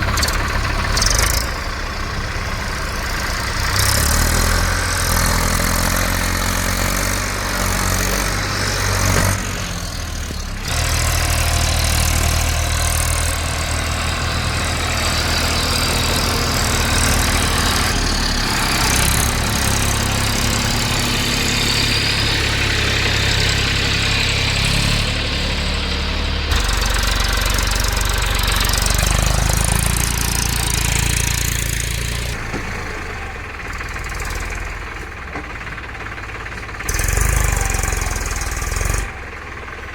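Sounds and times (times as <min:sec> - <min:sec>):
tractor diesel engine throbbing: 0:00.0 - 0:39.9.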